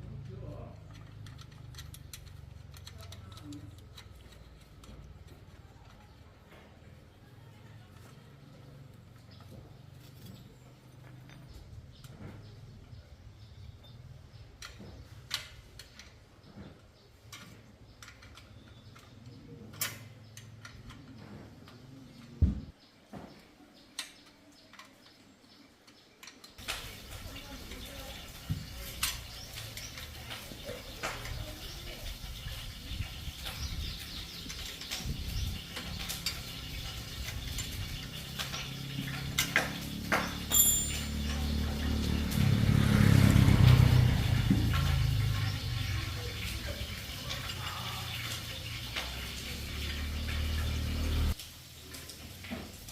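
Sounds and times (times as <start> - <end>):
metallic clicks and clinks: 0.6 - 6.2, 40.3 - 41.8
low motor hum: 33.7 - 46.9.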